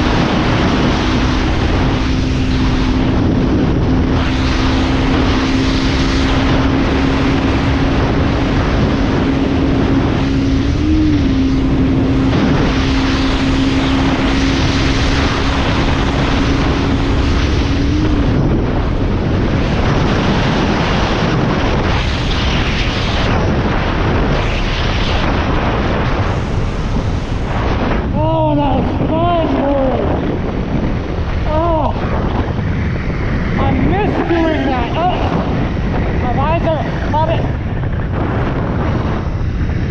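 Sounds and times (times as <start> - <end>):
motorcycle engine running: 0.0 - 21.8
wind rush on microphone: 0.0 - 39.9.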